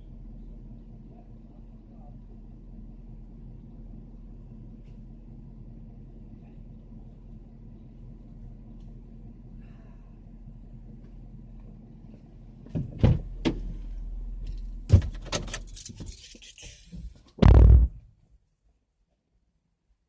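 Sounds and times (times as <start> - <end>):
vehicle engine humming: 0.0 - 18.0
car door shutting: 12.6 - 13.8, 14.9 - 16.1, 17.4 - 18.0.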